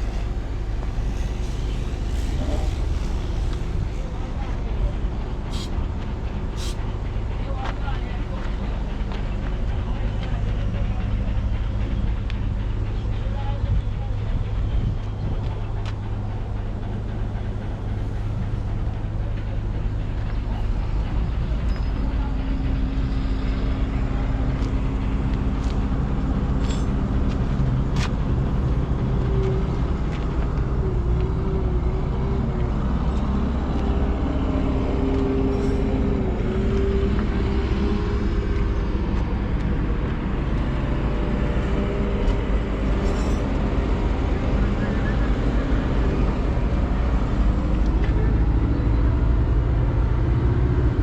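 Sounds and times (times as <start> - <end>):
wavering high whine: 0.0 - 7.0
diesel engine running: 0.0 - 51.0.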